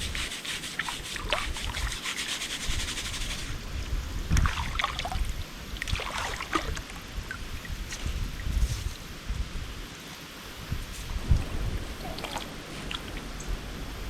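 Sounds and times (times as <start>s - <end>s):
wind buffeting microphone: 2.6s - 14.0s
river water splashing: 4.3s - 7.8s.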